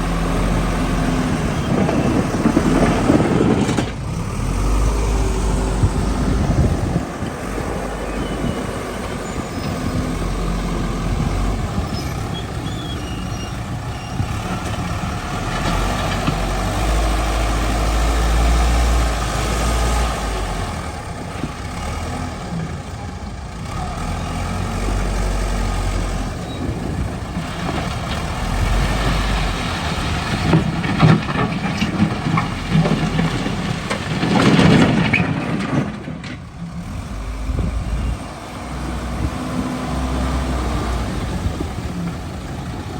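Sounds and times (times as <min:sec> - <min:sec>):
backhoe diesel engine rumbling: 0:00.0 - 0:42.9
knocks and scrapes: 0:01.2 - 0:04.9, 0:27.4 - 0:36.6.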